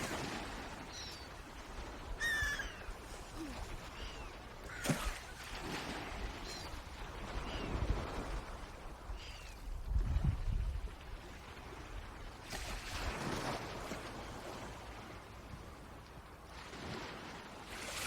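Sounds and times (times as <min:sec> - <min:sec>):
swans calling: 0:02.2 - 0:04.8.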